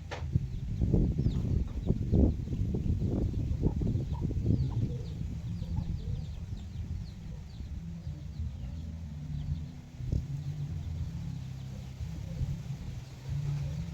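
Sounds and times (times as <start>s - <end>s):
steady low hum: 0.0s - 13.9s
chickens clucking: 0.9s - 10.2s.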